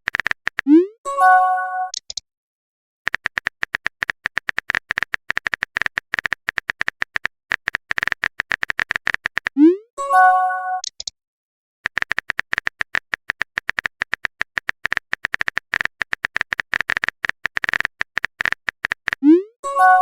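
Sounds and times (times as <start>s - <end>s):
phone keyboard typing clicks: 0.0s - 0.7s, 1.9s - 2.2s, 3.1s - 9.6s, 11.8s - 19.2s
message notification chime: 1.1s - 1.9s, 9.7s - 10.8s, 19.7s - 20.0s.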